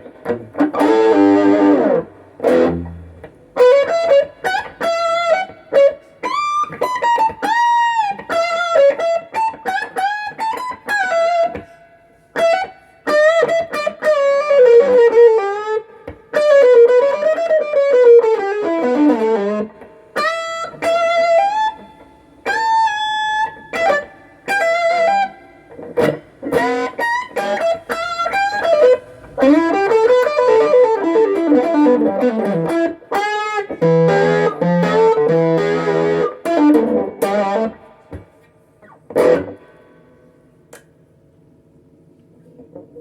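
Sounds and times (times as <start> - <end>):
electric guitar lead playing: 0.0 - 40.1.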